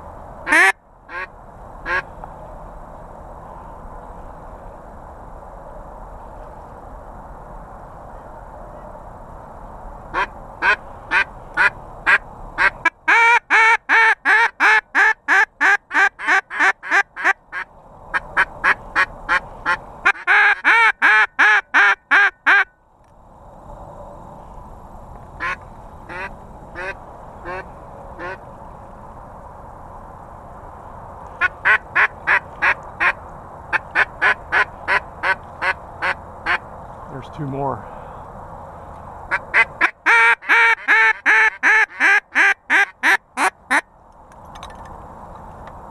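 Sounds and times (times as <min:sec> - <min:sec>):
duck call quacks: 0:00.5 - 0:01.3, 0:01.9 - 0:02.1, 0:10.1 - 0:22.7, 0:25.4 - 0:27.6, 0:28.2 - 0:28.4, 0:31.4 - 0:36.6, 0:39.3 - 0:43.8.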